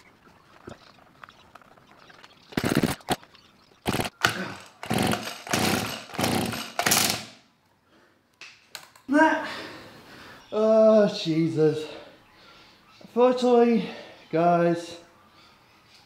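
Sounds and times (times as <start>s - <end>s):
engine turning over: 3.8s - 7.3s
recoil starter rips: 3.8s - 7.4s.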